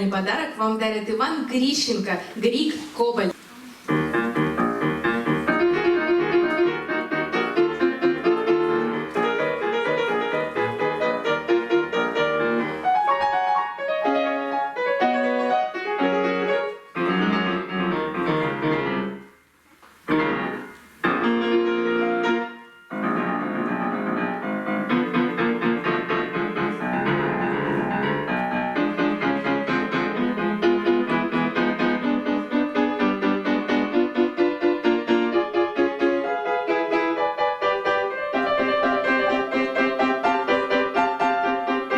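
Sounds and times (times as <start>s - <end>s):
solo piano piece: 3.5s - 41.9s.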